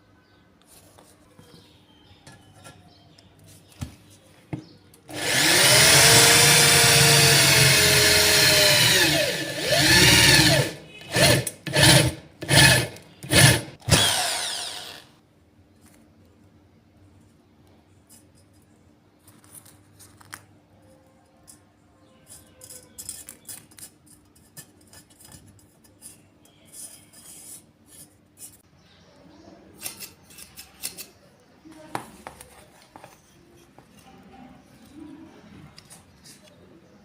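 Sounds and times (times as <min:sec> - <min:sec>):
small hand tools clicking and snipping: 0:22.3 - 0:26.9, 0:29.8 - 0:31.2.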